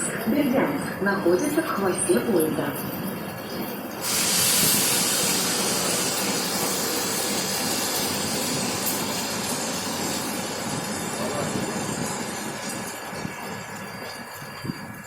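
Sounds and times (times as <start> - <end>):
train air brake hissing: 4.0 - 10.2.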